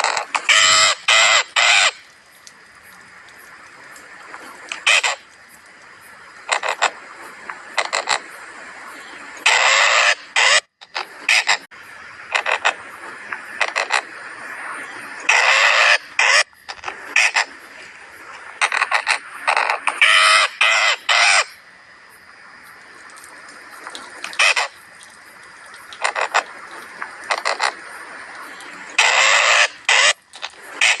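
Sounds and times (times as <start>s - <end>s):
bird harsh calls: 29.0s - 31.0s.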